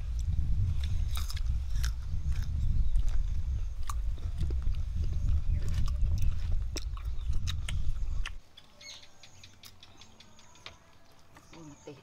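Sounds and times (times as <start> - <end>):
low rumble: 0.0 - 8.4
crunching and chewing mango: 0.1 - 8.4.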